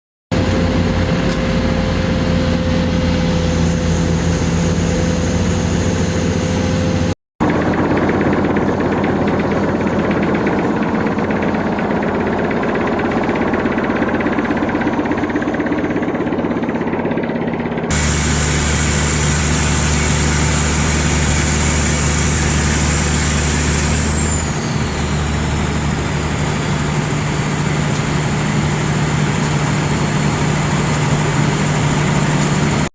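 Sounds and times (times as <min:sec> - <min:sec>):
high whine: 0:17.9 - 0:32.9.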